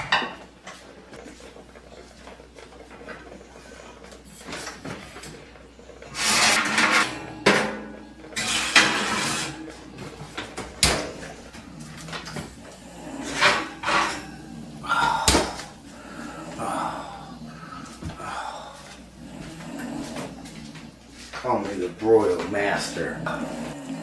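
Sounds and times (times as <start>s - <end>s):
dishes and utensils clattering: 0.0s - 0.5s, 4.4s - 15.8s.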